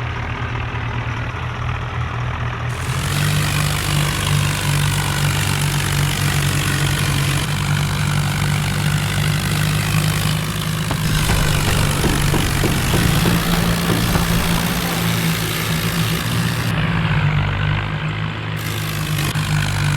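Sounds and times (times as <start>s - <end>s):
tractor diesel engine running: 10.9s - 16.8s.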